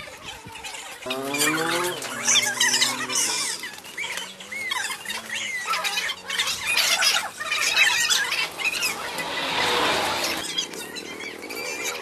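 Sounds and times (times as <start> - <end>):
birds chirping and squawking: 0.0 - 12.0
rush of noise: 6.6 - 12.0.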